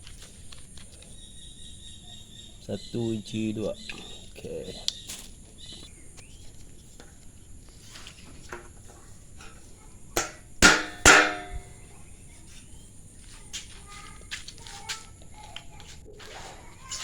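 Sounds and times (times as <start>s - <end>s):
steel pieces clanking: 10.2s - 11.7s.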